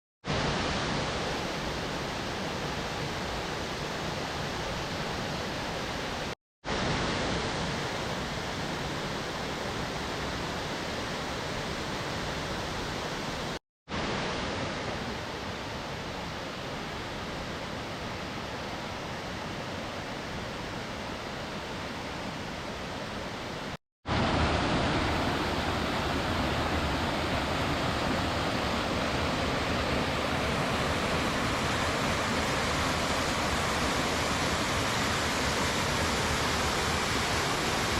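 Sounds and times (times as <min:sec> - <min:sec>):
waterfall rushing: 0:24.1 - 0:37.9.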